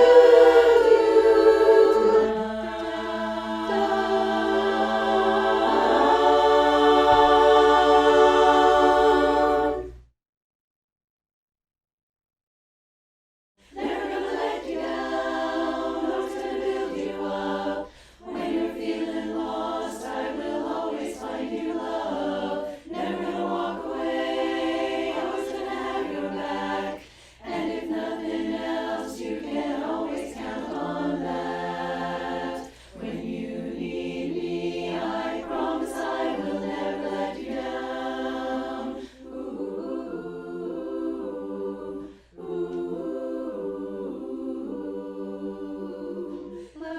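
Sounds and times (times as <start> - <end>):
choir singing in close harmony: 0.0 - 10.0, 13.6 - 46.9
singers breathing: 17.8 - 18.3, 27.0 - 27.5, 32.6 - 33.0, 39.0 - 39.3, 42.0 - 42.4, 46.4 - 46.8.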